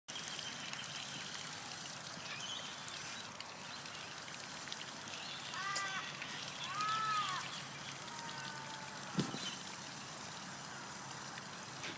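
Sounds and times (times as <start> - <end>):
birds calling: 5.0 - 10.0.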